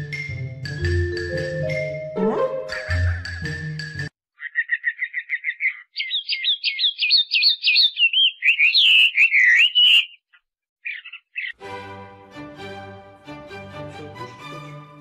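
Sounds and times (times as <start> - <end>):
songbird singing: 4.3 - 11.6.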